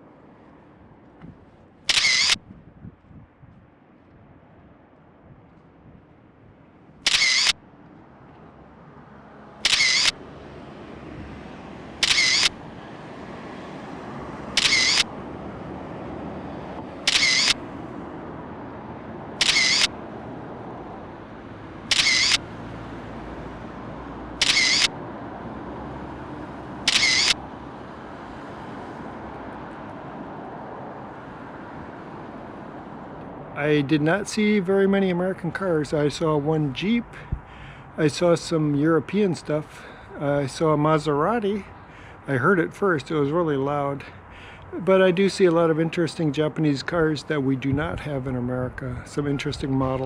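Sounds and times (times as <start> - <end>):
road traffic: 0.0 - 50.0
camera shutter click and wind: 1.2 - 4.2, 7.0 - 7.7, 9.6 - 10.2, 12.0 - 12.6, 14.5 - 15.2, 16.8 - 17.7, 19.4 - 20.0, 21.8 - 22.5, 24.4 - 25.0, 26.8 - 27.4.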